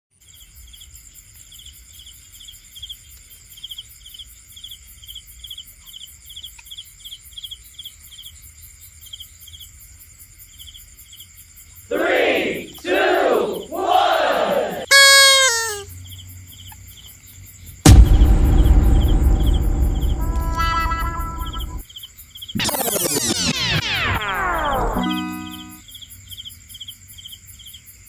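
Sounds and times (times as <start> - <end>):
loud shout: 11.9 - 15.8.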